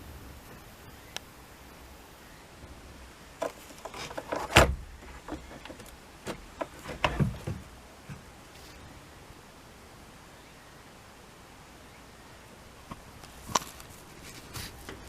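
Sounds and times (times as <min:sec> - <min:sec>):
sharp clicks and knocks: 0:03.4 - 0:08.3.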